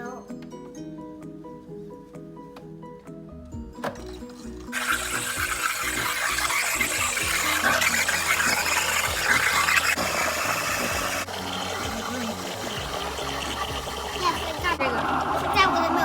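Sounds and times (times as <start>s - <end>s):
background music: 0.0s - 16.0s
steam wand hissing: 4.7s - 16.0s.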